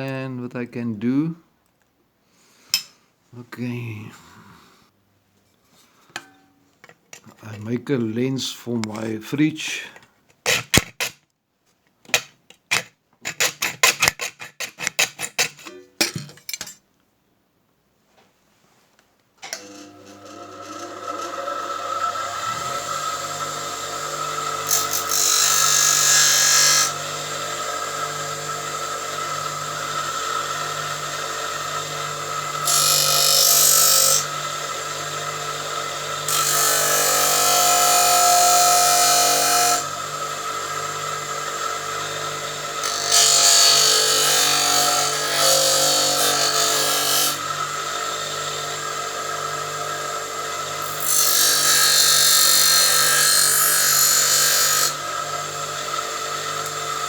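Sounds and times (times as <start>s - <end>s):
loud rasping grind: 12.7s - 15.7s, 19.6s - 34.9s
bench grinder humming: 19.6s - 57.0s.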